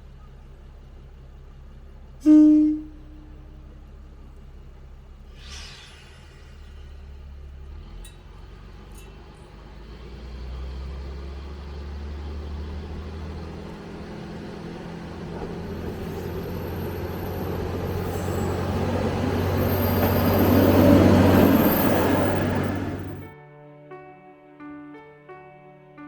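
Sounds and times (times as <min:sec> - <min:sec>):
diesel railcar passing: 0:00.6 - 0:23.3
thin high whine: 0:16.7 - 0:23.3.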